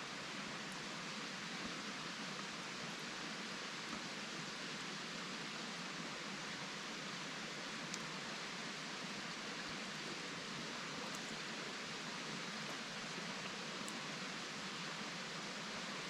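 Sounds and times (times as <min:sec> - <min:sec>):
steady outdoor hiss: 0:00.0 - 0:16.0
faint tick: 0:07.9 - 0:08.1, 0:11.0 - 0:11.4.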